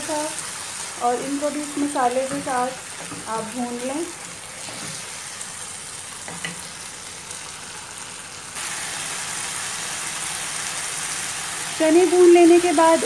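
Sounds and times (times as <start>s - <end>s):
chickpeas sizzling in a pan: 0.0s - 13.0s
wooden spatula scraping: 4.5s - 5.2s.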